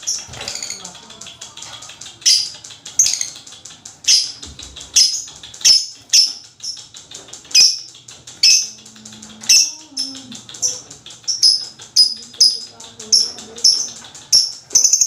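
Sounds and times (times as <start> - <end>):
bird dry ticking chatter: 0.0 - 15.0
bird high chirps: 4.1 - 4.4, 7.6 - 8.8, 9.4 - 15.0.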